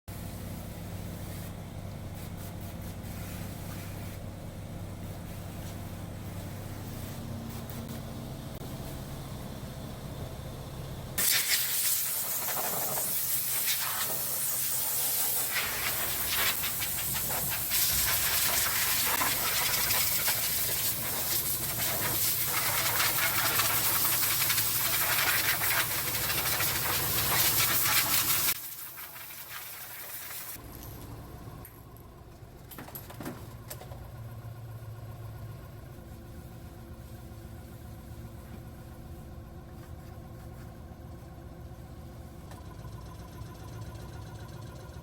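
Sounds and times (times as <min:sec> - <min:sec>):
low steady hum: 0:00.1 - 0:11.2, 0:30.6 - 0:45.0.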